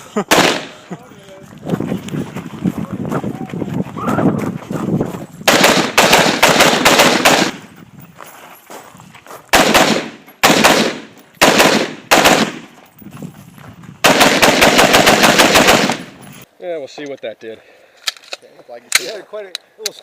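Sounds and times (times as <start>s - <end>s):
rifle shots: 0.3s - 0.8s, 5.4s - 7.7s, 9.5s - 12.7s, 14.0s - 16.2s.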